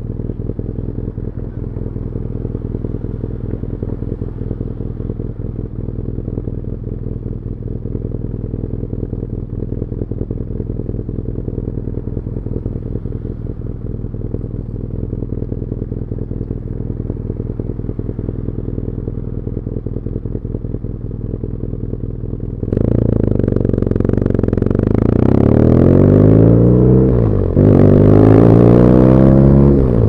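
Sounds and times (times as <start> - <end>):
motorcycle engine idling and revving: 0.0 - 30.0.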